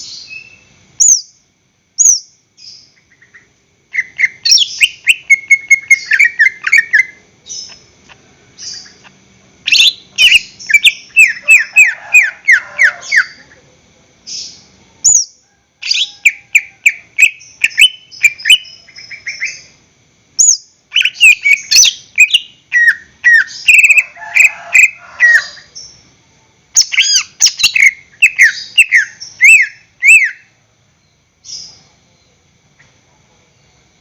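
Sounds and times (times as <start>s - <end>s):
bird singing whistled notes: 0.0s - 1.4s, 2.0s - 7.8s, 9.7s - 11.8s, 14.4s - 19.7s, 20.4s - 24.0s, 26.8s - 30.5s.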